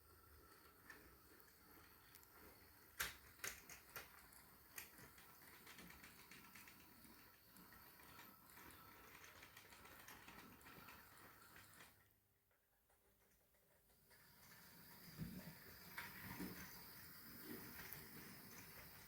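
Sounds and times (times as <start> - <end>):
wheels clicking on track: 0.4 - 12.1, 13.0 - 19.0
model train motor whirring: 3.0 - 12.0, 14.1 - 19.0.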